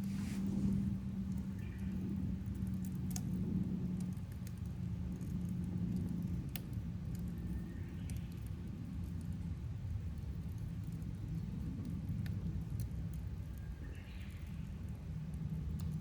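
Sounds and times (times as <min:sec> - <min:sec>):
campfire crackling and popping: 0:02.4 - 0:07.3, 0:10.0 - 0:13.7.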